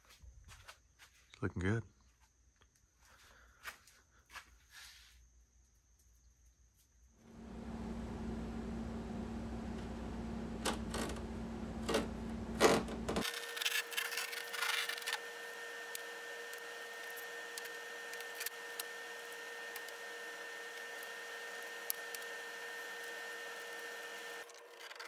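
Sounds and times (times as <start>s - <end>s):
steady background hum: 7.2s - 24.8s
knife rasping through fiberglass: 12.6s - 16.0s.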